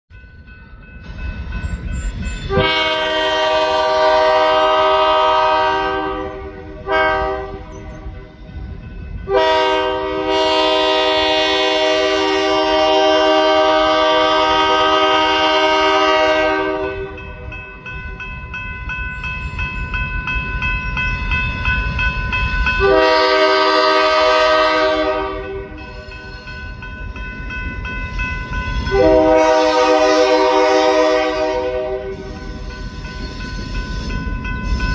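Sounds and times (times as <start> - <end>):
train rumble: 0.1 - 34.9
locomotive air horn blasts: 2.5 - 7.9, 9.3 - 17.4, 22.8 - 26.1, 28.9 - 32.3.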